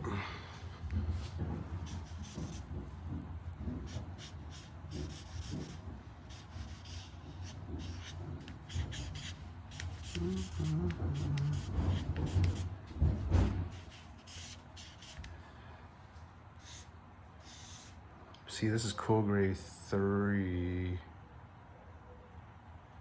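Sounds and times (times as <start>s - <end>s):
pen scratching on paper: 1.6s - 2.9s, 3.5s - 15.3s, 16.6s - 18.0s.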